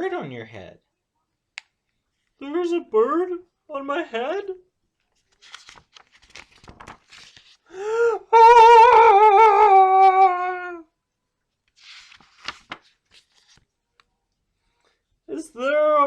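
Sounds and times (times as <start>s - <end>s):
child wavering wordless cry: 7.8s - 10.9s.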